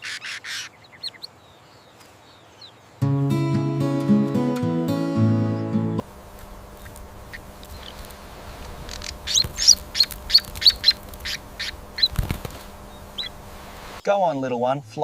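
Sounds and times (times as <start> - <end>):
small bird chirping: 0.0 - 3.0, 6.4 - 8.2, 8.8 - 13.4
wings flapping: 6.3 - 14.0.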